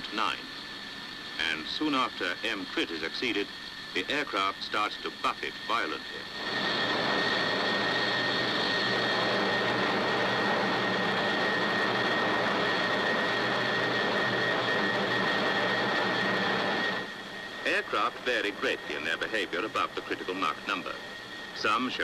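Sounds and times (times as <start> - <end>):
high-pitched whine: 0.0 - 22.0
jet aircraft rushing noise: 0.0 - 22.0.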